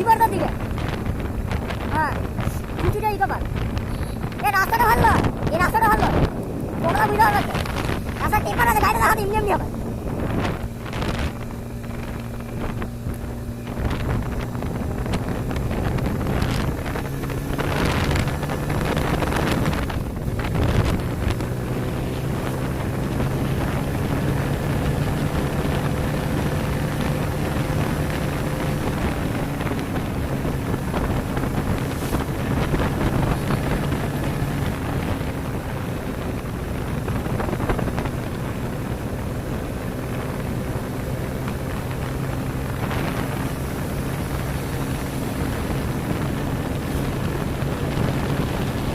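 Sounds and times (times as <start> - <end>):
motorcycle engine running: 0.0 - 48.9
wind buffeting microphone: 0.0 - 48.9.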